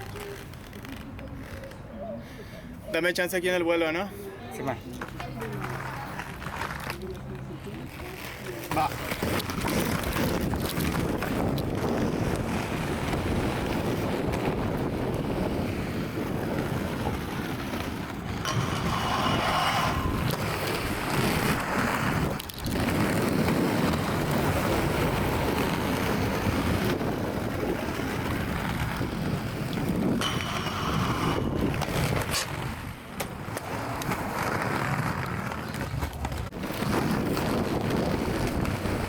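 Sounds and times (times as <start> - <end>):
wind buffeting microphone: 8.9 - 39.0.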